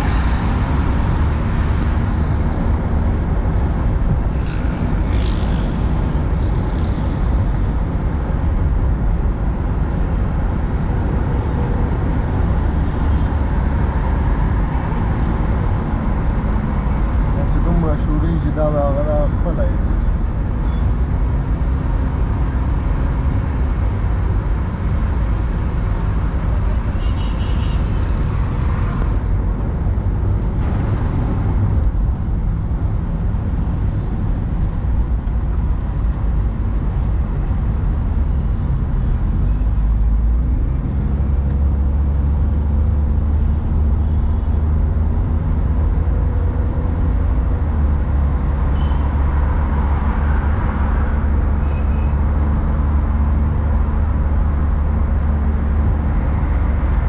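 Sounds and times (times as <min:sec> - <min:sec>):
car engine: 0:00.0 - 0:20.4
road noise: 0:00.0 - 0:57.0.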